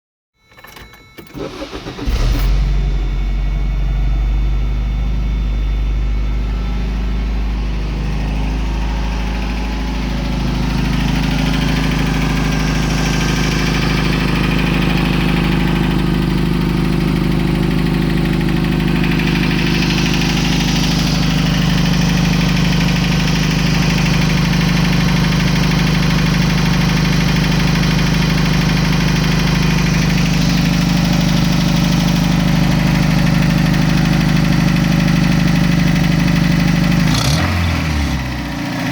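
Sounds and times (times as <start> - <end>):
truck engine idling: 1.4 - 37.0.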